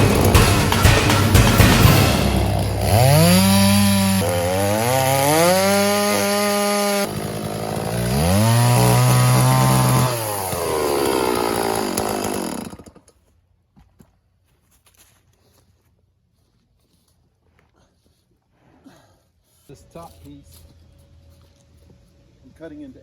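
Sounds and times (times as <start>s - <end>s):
chainsaw engine revving: 0.0s - 13.1s.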